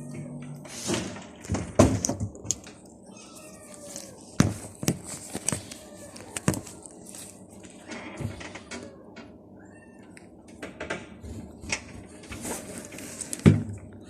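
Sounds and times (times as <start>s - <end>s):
cats meowing: 3.0s - 4.4s, 5.6s - 7.0s, 7.7s - 10.4s.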